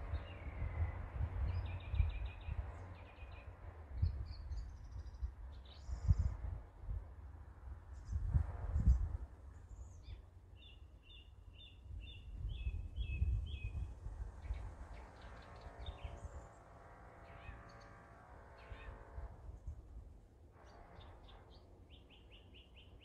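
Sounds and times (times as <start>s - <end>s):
small birds chirping: 0.0s - 6.3s, 9.6s - 16.6s, 20.6s - 23.0s
low outdoor rumble: 0.0s - 23.0s.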